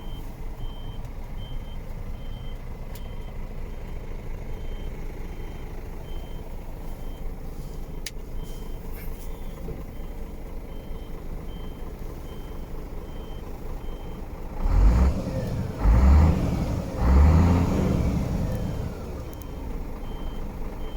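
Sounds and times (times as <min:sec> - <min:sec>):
diesel truck engine idling and revving: 0:00.0 - 0:20.9
reversing beeper: 0:07.9 - 0:20.9.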